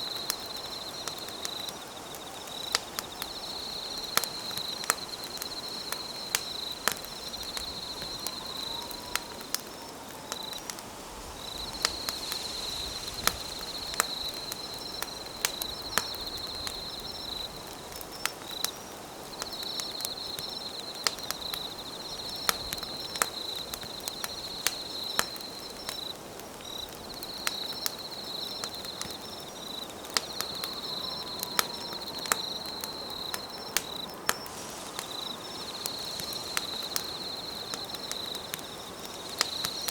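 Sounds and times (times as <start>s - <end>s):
campfire crackling and popping: 0.0s - 39.9s
insect trilling: 30.4s - 39.9s.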